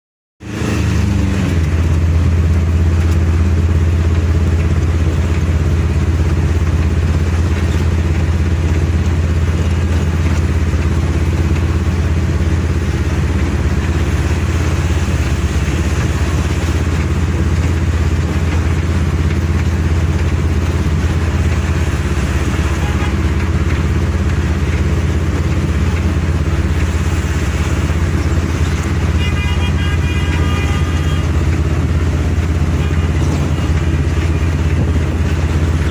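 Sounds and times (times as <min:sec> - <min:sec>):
road noise: 0:00.4 - 0:35.9
vehicle engine drone: 0:00.4 - 0:35.9
short horn-like tone: 0:22.5 - 0:23.4, 0:28.9 - 0:31.9, 0:32.6 - 0:34.6.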